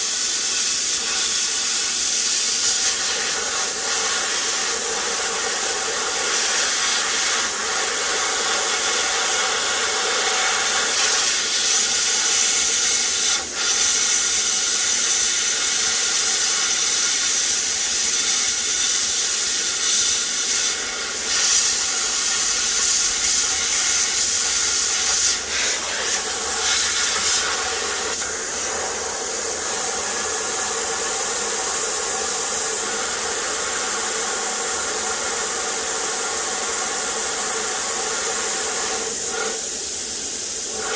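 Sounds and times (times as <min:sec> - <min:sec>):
plasma cutter hissing: 0:00.0 - 0:40.9.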